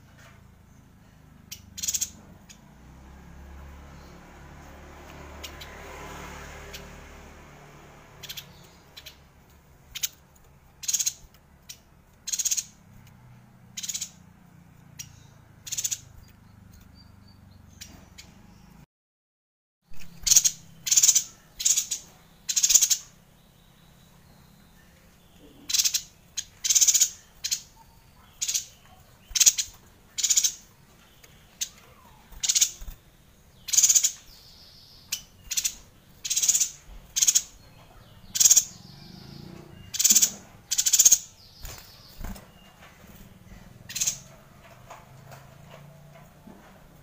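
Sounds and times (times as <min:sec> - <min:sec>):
bird calling harsh notes: 0:33.6 - 0:42.5.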